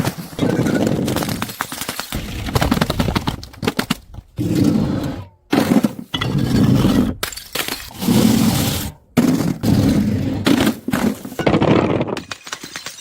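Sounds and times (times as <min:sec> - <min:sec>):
glass bottles shattering: 0:07.2 - 0:08.0, 0:11.2 - 0:13.0.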